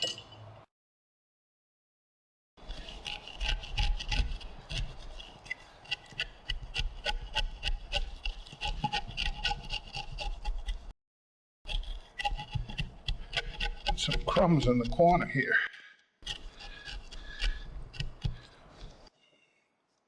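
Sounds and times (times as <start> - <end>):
chisel scraping wood: 2.6 - 10.9, 11.7 - 15.3, 16.2 - 19.1.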